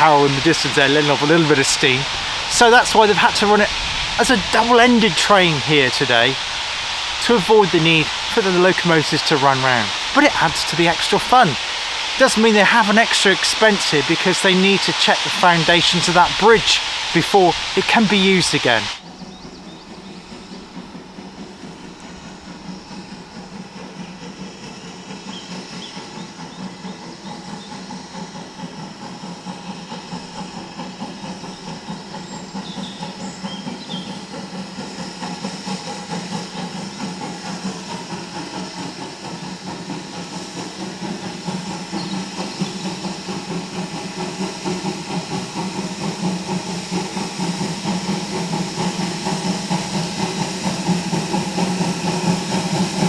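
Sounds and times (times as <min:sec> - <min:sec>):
fast rhythmic pulsing: 0:00.0 - 0:19.0
steam hiss: 0:00.0 - 0:53.0
train engine drone: 0:00.0 - 0:53.0.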